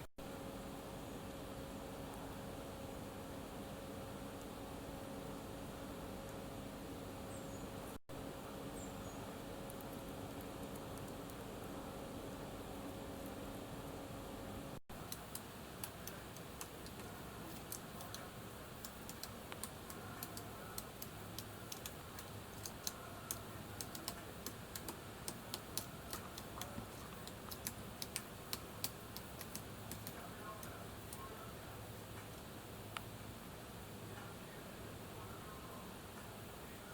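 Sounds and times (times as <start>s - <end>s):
faint steady hiss: 0.6s - 36.9s
sharp tapping clicks: 14.9s - 31.3s.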